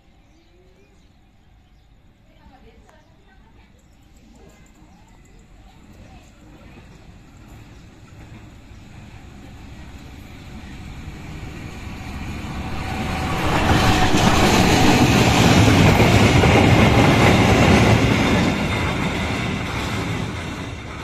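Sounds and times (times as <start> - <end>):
diesel locomotive passing: 4.6 - 21.0.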